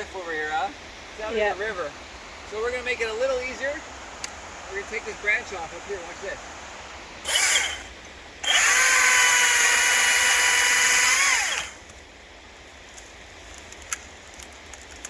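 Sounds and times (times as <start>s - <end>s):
chainsaw cutting branch: 5.7s - 12.0s.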